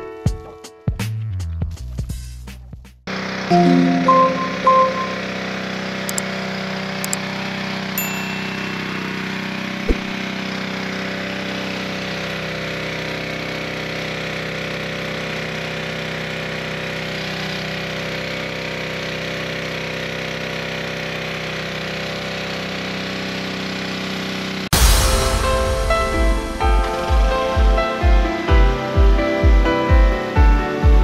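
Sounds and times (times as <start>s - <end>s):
pressure washer engine humming: 3.1s - 24.6s
sharp knock: 9.9s - 10.2s.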